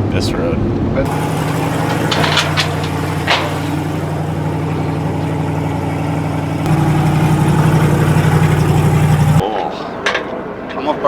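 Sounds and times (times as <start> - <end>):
vehicle engine running: 1.0 - 9.4.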